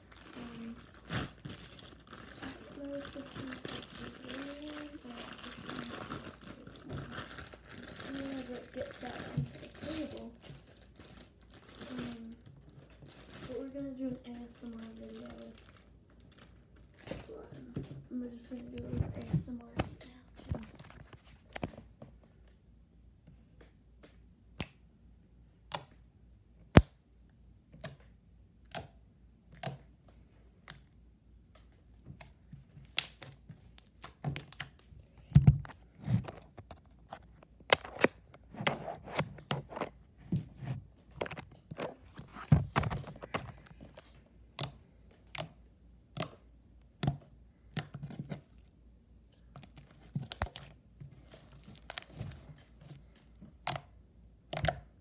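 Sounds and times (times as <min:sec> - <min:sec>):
slime squishing with pops: 0:00.1 - 0:17.2, 0:32.1 - 0:36.2, 0:41.9 - 0:48.2, 0:49.4 - 0:55.0.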